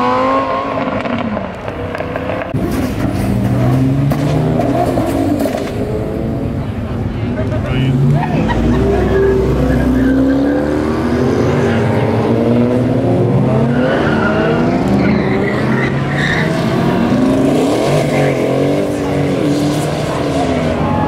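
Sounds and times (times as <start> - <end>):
sports car engines revving: 0.0 - 21.0
tires squealing: 7.4 - 21.0.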